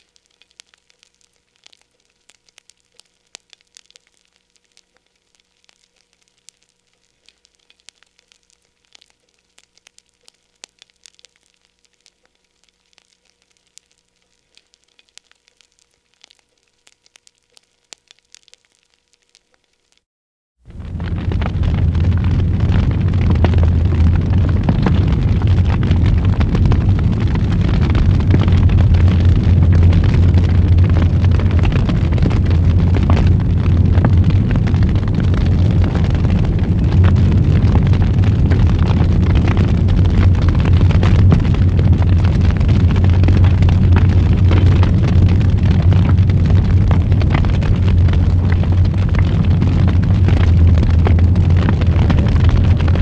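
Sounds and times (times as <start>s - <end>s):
wood fire crackling and popping: 0.0s - 53.0s
low rumble of flames: 20.6s - 53.0s.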